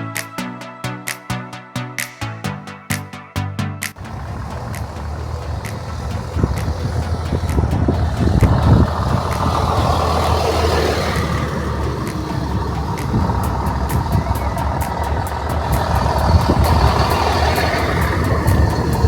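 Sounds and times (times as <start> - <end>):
road noise: 3.8 - 19.0
bus engine hum: 3.9 - 19.0.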